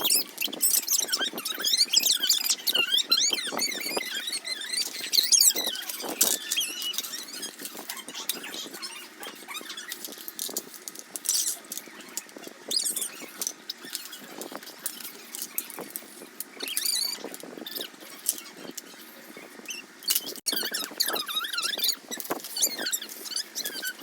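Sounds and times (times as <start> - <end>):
short high squeaks: 0.0 - 10.6, 16.6 - 24.0.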